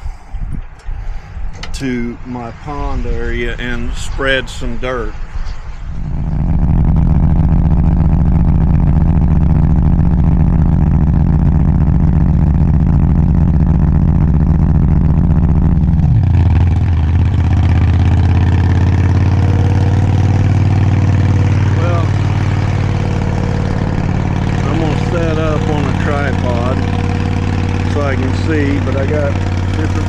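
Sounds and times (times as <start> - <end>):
small engine running: 6.1 - 30.0.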